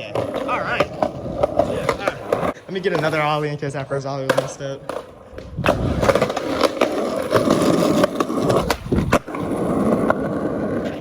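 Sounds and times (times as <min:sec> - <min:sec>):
skateboard landing: 0:00.0 - 0:11.0
skateboard wheels rolling on pavement: 0:00.0 - 0:11.0
skateboard ollie pop: 0:04.3 - 0:11.0.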